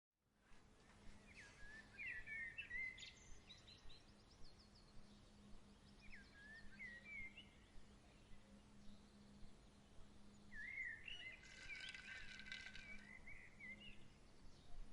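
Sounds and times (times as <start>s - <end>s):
bird whistling song: 1.3s - 3.8s, 10.5s - 14.0s.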